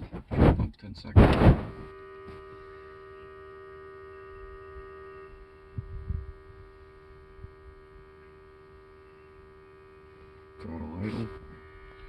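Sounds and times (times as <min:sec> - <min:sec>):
soft low thumps: 0:00.0 - 0:01.9
electric fuel pump humming: 0:01.1 - 0:12.0.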